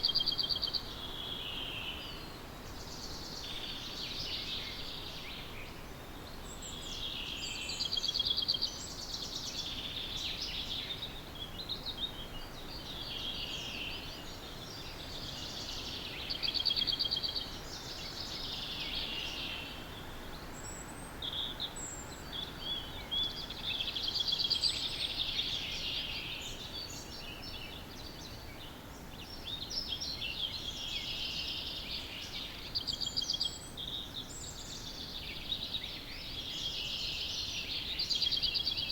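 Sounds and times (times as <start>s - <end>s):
birds chirping: 0.0s - 5.8s
background hiss: 0.0s - 38.9s.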